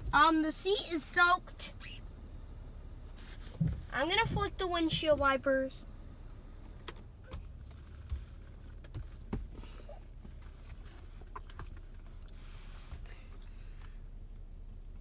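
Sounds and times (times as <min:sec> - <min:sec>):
windshield wipers clicking and knocking: 0:00.0 - 0:01.4, 0:03.2 - 0:05.9, 0:06.6 - 0:13.9.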